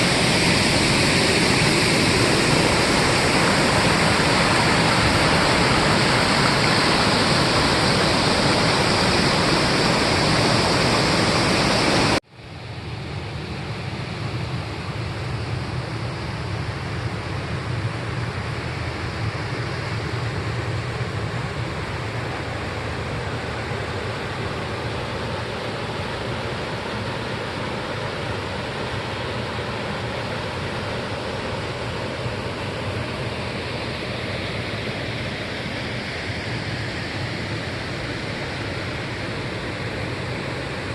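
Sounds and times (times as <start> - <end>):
waterfall rushing: 0.0 - 12.2.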